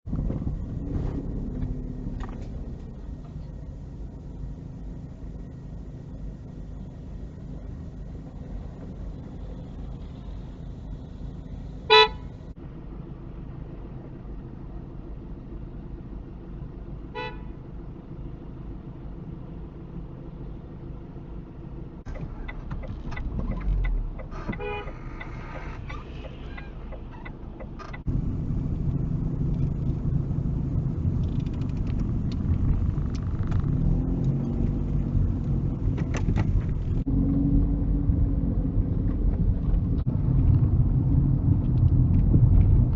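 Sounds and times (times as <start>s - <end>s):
car engine and road noise: 0.0s - 42.9s
car horn blast: 11.9s - 12.4s, 17.1s - 17.5s, 24.6s - 25.0s.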